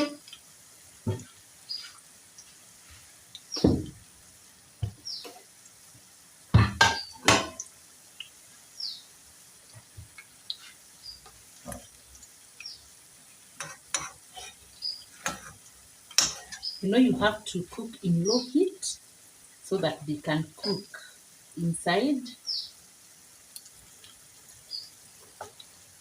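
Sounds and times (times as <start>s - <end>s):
utensil stirring food in frying pan: 0.0s - 21.6s, 22.4s - 26.0s
knocks and scrapes against pan: 1.1s - 1.3s, 6.6s - 7.6s, 13.6s - 14.6s, 15.2s - 15.6s.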